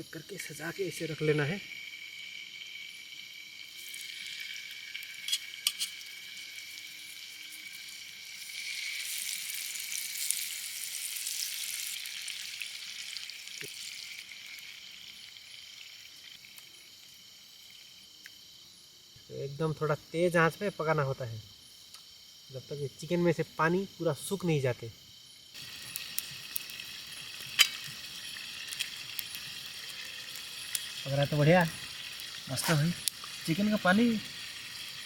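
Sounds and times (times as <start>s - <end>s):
chicken sizzling in a pan: 0.0s - 17.8s, 25.5s - 35.0s.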